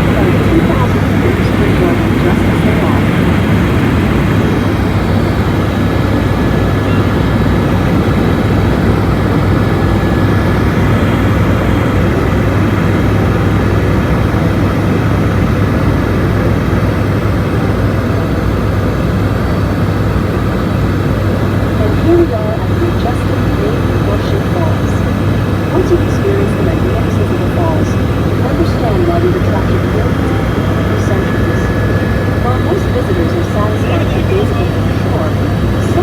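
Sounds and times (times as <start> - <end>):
helicopter engine and rotor noise: 0.0 - 36.0.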